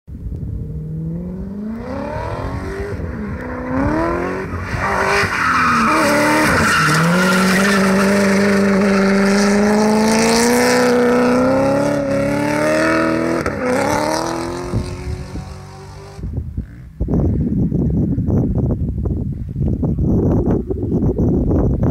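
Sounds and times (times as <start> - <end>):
car engine revving: 0.6 - 16.2.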